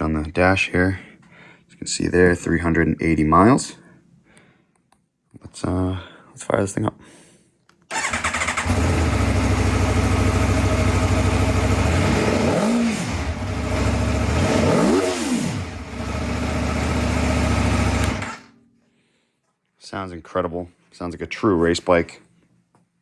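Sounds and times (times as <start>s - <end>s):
motorcycle engine idling and revving: 7.9s - 18.5s.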